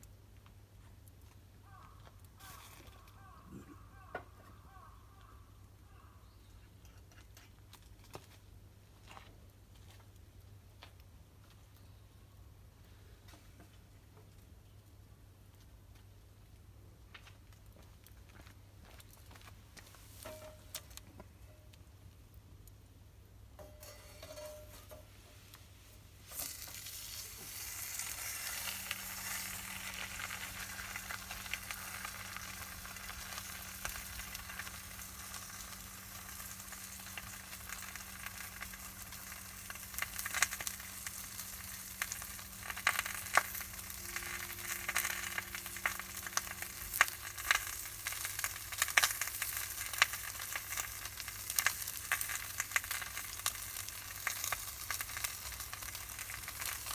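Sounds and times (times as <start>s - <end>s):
pork sizzling in fat: 2.4s - 3.0s, 19.8s - 21.0s, 23.6s - 56.9s.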